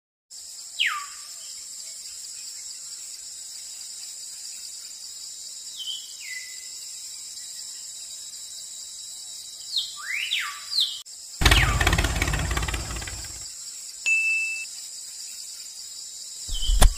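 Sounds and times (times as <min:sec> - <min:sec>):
insect chorus: 0:00.3 - 0:16.9
bird whistles sliding down: 0:16.5 - 0:16.9.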